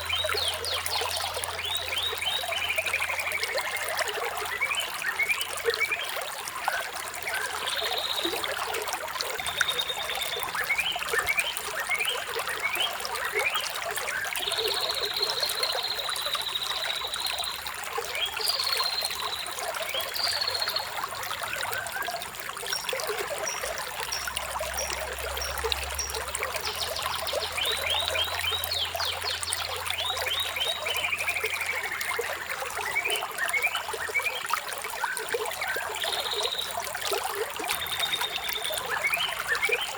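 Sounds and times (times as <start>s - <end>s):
water trickling: 0.0s - 39.9s
songbirds chirping: 14.2s - 39.9s.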